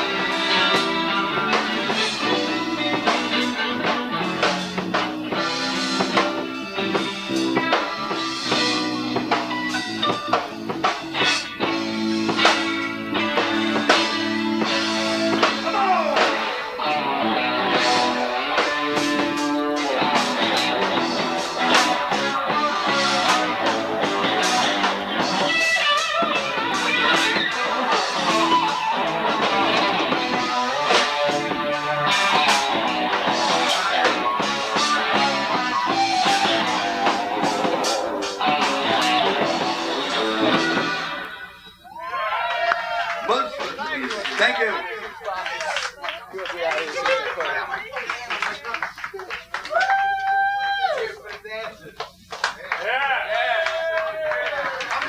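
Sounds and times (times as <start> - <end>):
drum kit beat: 0.0 - 42.0
electric guitar: 0.0 - 43.9
bass guitar: 0.0 - 44.0.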